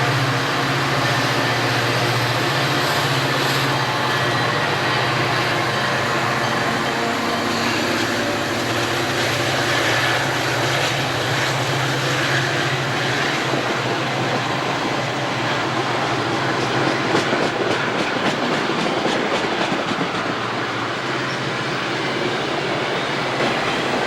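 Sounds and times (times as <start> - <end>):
diesel locomotive engine hum: 0.0 - 24.0
rumble of passing train cars: 0.0 - 24.0.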